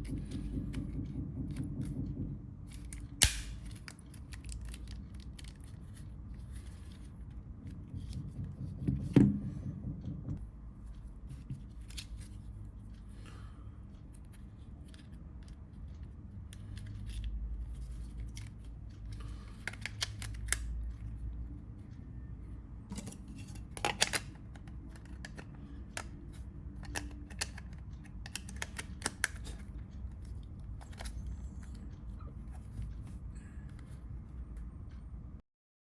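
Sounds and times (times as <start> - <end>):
low steady hum: 0.0 - 35.4
phone parts clicking together: 26.8 - 29.7.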